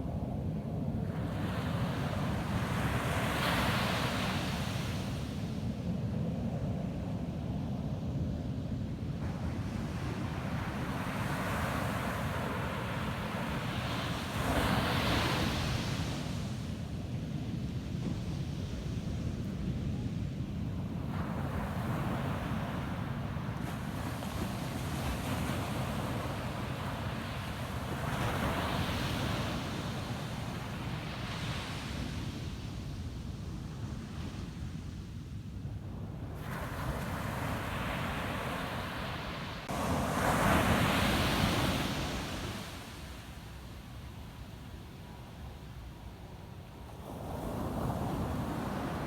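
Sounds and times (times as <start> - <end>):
low rumble of surf: 0.0 - 49.0
ocean waves breaking on beach: 20.8 - 32.8, 36.2 - 49.0.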